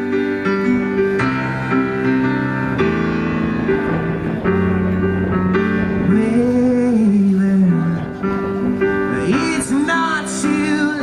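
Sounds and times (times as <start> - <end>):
live band playing: 0.0 - 11.0
person singing: 6.0 - 11.0.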